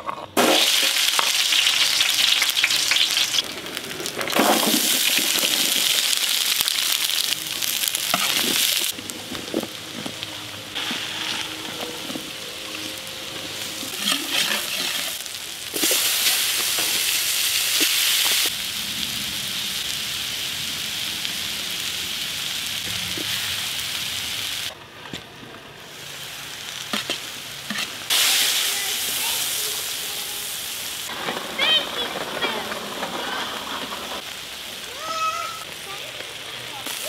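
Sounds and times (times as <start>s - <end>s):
vegetables and meat sizzling in a wok: 0.4s - 24.8s, 25.6s - 37.0s
spatula scraping and clacking: 26.9s - 27.9s.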